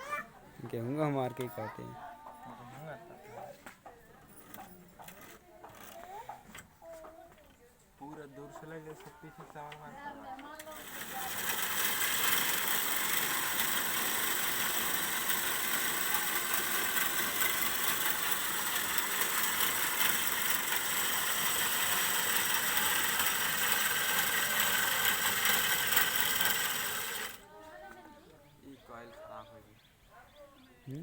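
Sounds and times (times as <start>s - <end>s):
mechanical running noise: 10.5s - 27.5s.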